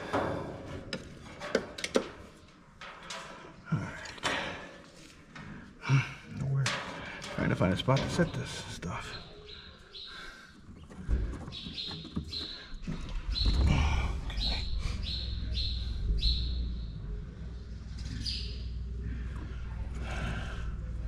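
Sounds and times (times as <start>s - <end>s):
small bird chirping: 8.5s - 10.9s, 11.5s - 18.9s
steady low rumble: 13.2s - 21.0s.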